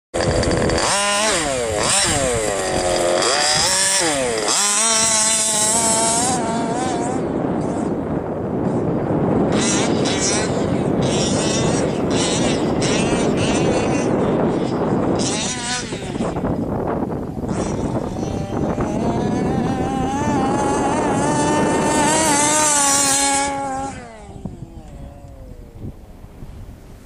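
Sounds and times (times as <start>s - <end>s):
car engine revving: 0.2s - 7.8s, 17.4s - 25.7s.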